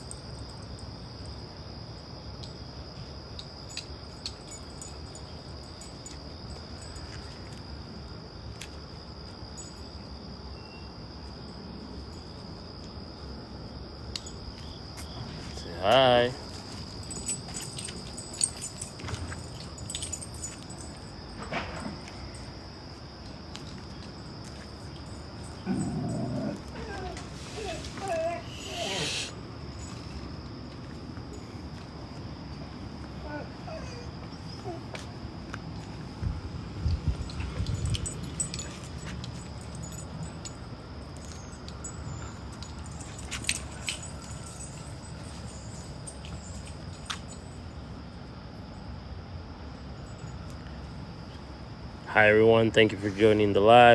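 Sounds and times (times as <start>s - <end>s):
dogs jingling and scuffling: 0.0s - 1.3s, 3.4s - 7.7s, 14.2s - 28.8s, 29.6s - 31.9s, 37.0s - 47.8s
crickets trilling: 0.0s - 53.9s.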